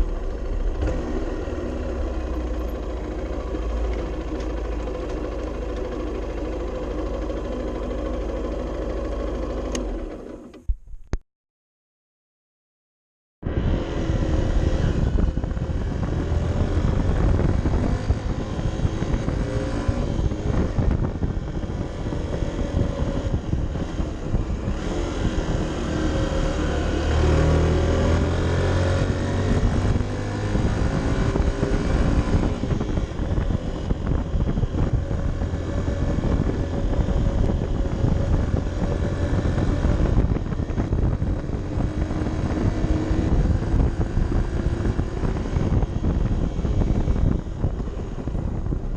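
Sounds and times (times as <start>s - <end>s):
motorcycle engine on the move: 0.0s - 11.2s, 13.4s - 48.9s
wind noise: 13.4s - 48.9s.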